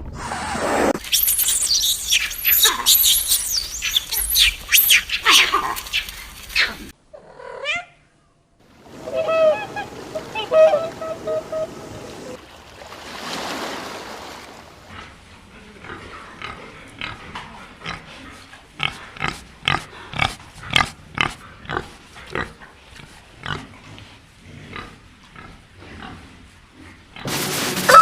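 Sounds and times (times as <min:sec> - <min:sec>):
goose honking: 0:09.0 - 0:12.4
pig grunting: 0:14.9 - 0:22.7.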